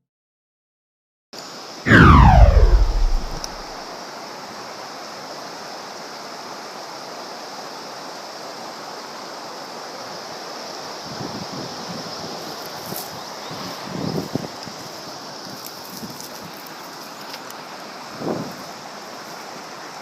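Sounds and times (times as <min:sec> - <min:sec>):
low rumble: 0:01.9 - 0:03.7
tone sliding downward: 0:01.9 - 0:03.7.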